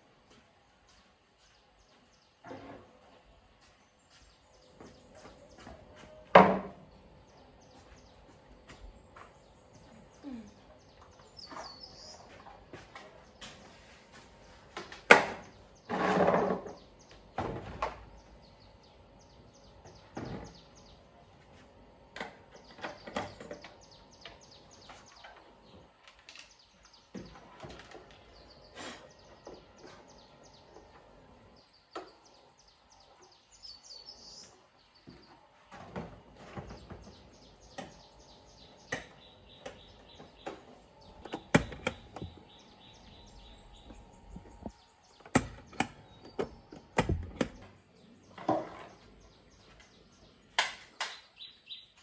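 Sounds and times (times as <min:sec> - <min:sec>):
bird chirp: 0:03.6 - 0:14.6, 0:22.5 - 0:35.4, 0:36.4 - 0:52.0.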